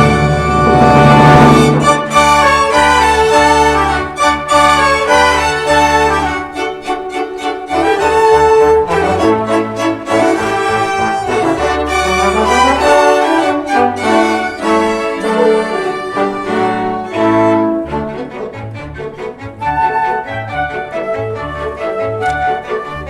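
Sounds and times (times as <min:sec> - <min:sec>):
cellos and basses: 0:00.0 - 0:23.0
orchestra playing: 0:00.0 - 0:23.0
violins: 0:00.0 - 0:23.0.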